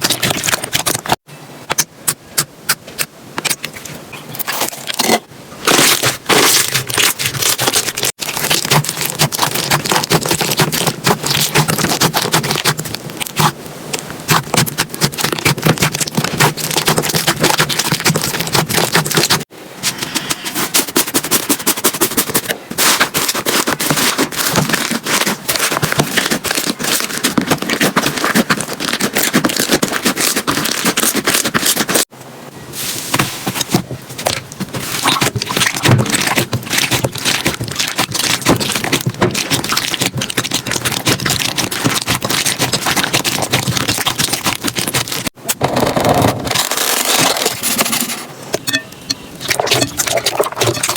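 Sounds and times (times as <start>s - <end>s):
slime squished by hand: 5.7s - 13.6s, 14.3s - 19.4s, 22.8s - 32.0s, 33.1s - 45.4s.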